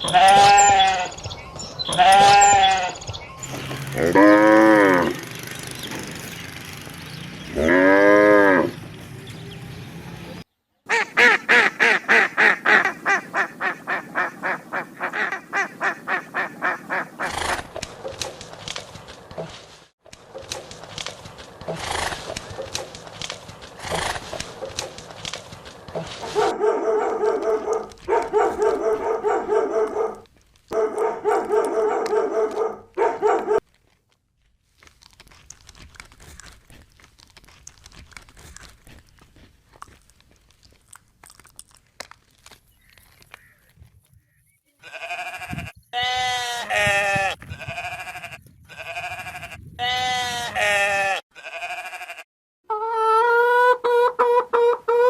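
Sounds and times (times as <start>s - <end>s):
livestock bleating: 0.0s - 1.2s, 1.9s - 3.0s, 3.8s - 5.2s, 7.5s - 8.7s, 44.8s - 52.3s.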